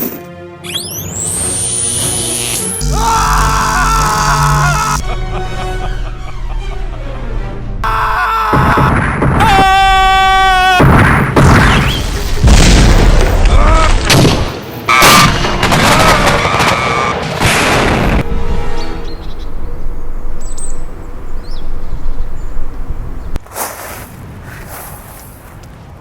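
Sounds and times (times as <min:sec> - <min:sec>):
sharp crack: 0:10.8 - 0:18.2.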